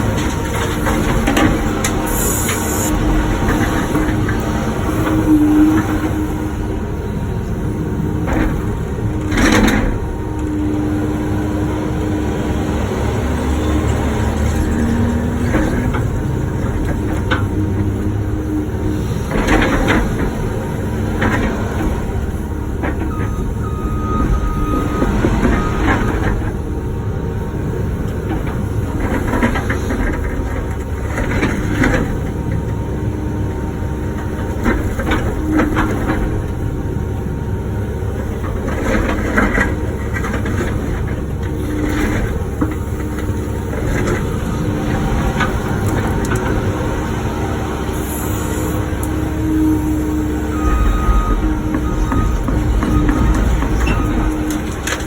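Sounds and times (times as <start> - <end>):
hydraulic whine: 0.0 - 11.4, 42.8 - 55.0
excavator diesel engine running: 0.0 - 55.0.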